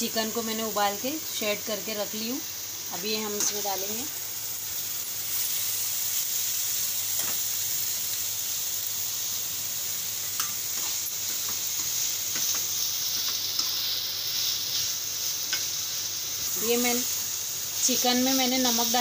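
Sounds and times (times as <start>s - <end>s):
vegetables sizzling in oil: 0.0s - 19.0s
metal spoon clicking against pan: 10.4s - 10.9s.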